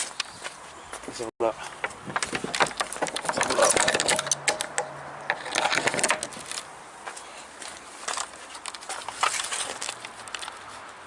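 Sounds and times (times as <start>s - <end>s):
rustling: 1.6s - 11.0s
crunching footsteps: 5.7s - 11.0s.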